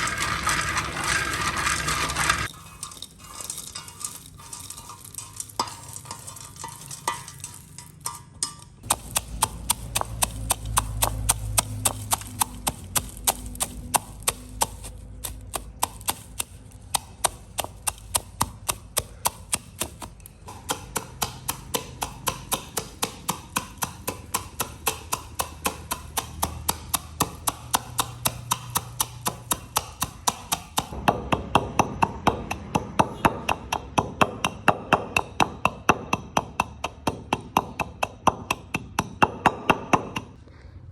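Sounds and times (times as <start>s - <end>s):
rhythmic knocking: 8.8s - 19.9s.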